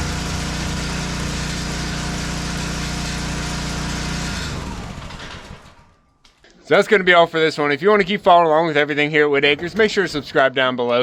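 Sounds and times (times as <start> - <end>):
small gasoline engine running: 0.0 - 6.0.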